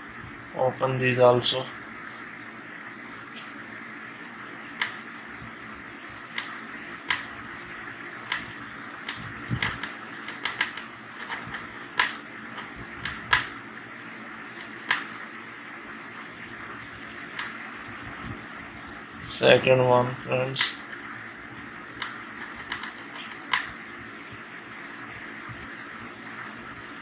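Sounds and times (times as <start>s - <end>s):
screwdriver clicks and taps: 7.1s - 7.3s, 9.1s - 12.2s, 14.9s - 15.1s, 22.0s - 23.7s.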